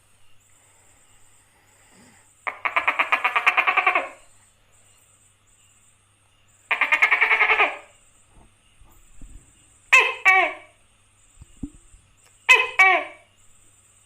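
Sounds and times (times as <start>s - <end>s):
gecko chattering call: 2.4s - 4.4s, 6.5s - 8.1s, 9.9s - 13.4s.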